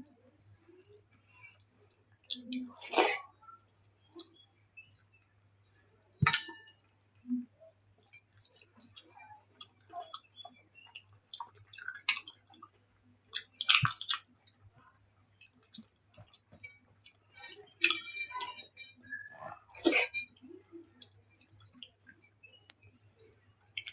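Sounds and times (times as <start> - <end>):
wet squishy chewing: 8.0 - 12.7, 13.3 - 14.6.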